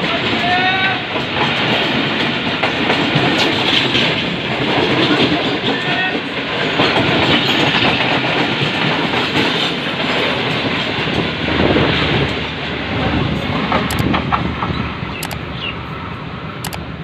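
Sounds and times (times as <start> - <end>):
wheels clacking over rail joints: 0.0 - 15.4
trains rumbling past: 0.0 - 17.0.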